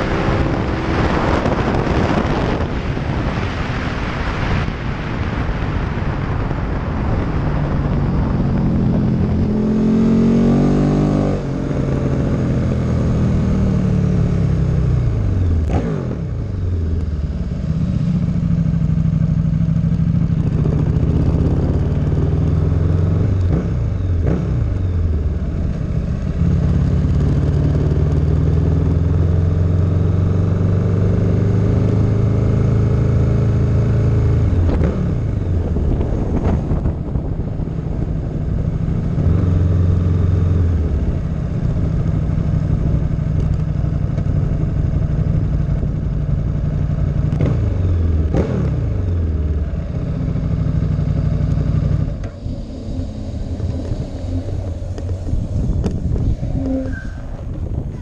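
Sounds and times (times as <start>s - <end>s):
car engine running: 40.1s - 58.0s.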